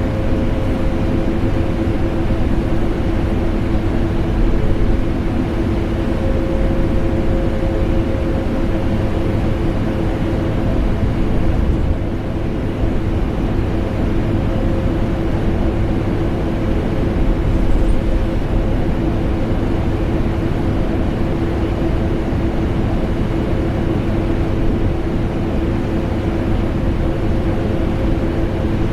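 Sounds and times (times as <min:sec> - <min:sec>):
air conditioner running: 0:00.0 - 0:28.9.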